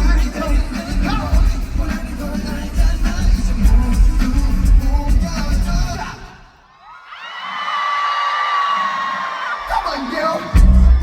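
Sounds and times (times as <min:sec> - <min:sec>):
heavy pounding beat: 0:00.0 - 0:06.2
person singing: 0:00.0 - 0:06.4.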